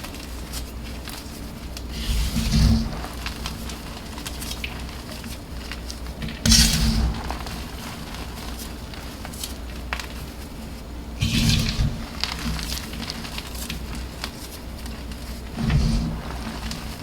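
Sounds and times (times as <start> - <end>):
chalk crumbling by hand: 0.0 - 17.0.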